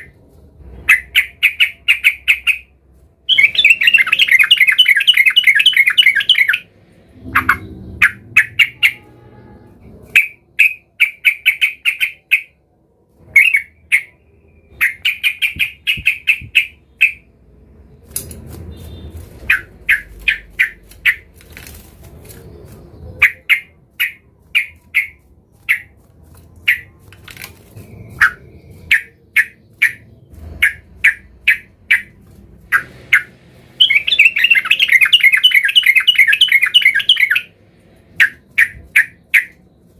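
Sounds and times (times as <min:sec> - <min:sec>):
bulbul singing: 0:03.3 - 0:12.6, 0:13.4 - 0:17.3, 0:18.7 - 0:21.3, 0:27.8 - 0:39.9.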